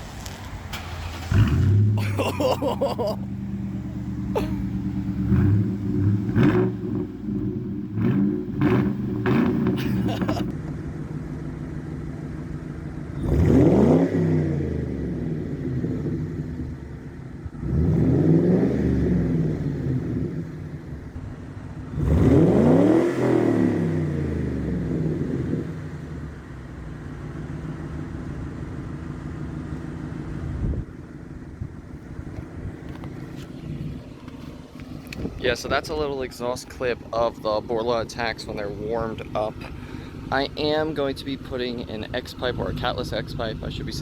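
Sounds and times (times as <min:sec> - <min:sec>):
car engine idling and revving: 0:00.0 - 0:44.0.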